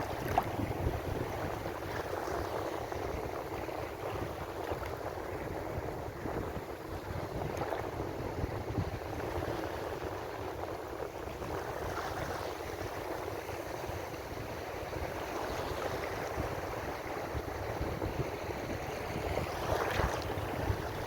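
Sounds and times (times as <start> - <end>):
wave breaking: 0.0 - 1.0
ocean waves washing: 0.0 - 21.0.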